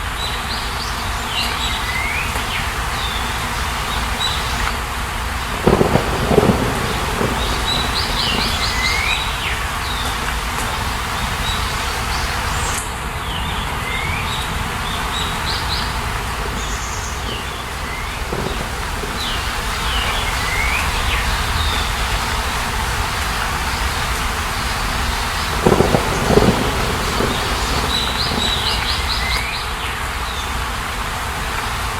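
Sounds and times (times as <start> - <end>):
steady rushing noise: 0.8 - 31.9
birds chirping: 5.4 - 22.7, 23.4 - 30.6.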